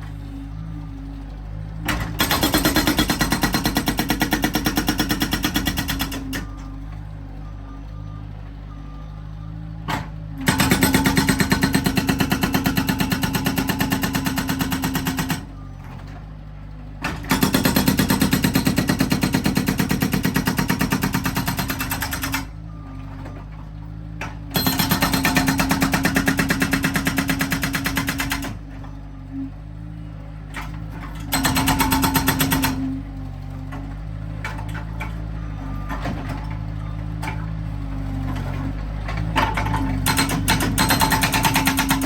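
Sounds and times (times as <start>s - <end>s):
diesel engine running: 0.0s - 42.0s
hydraulic breaker hammering: 1.9s - 6.5s, 10.4s - 15.5s, 17.0s - 22.6s, 24.5s - 28.7s, 31.1s - 33.0s, 39.2s - 42.0s.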